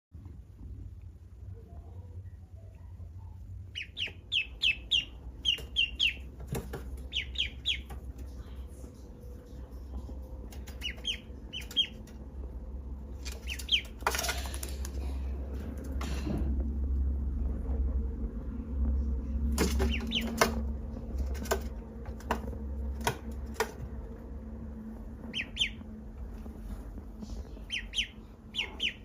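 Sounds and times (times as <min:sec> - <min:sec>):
steady low hum: 0:00.2 - 0:29.0
duckling peeping: 0:03.3 - 0:15.0, 0:19.5 - 0:23.6, 0:25.1 - 0:29.0.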